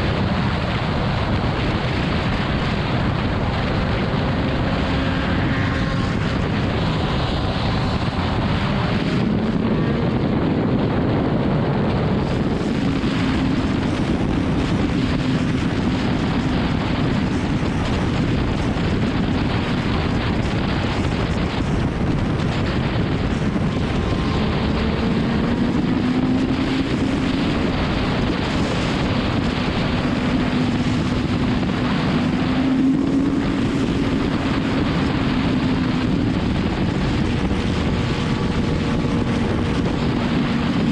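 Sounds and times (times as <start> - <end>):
motorcycle engine running: 0.0 - 40.9
wind noise on microphone: 0.0 - 40.9.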